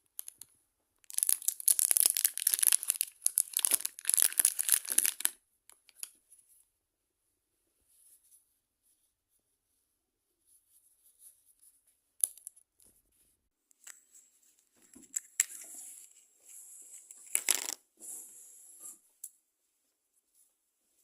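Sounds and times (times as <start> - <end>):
wrapper crinkling and tearing: 1.0 - 6.1.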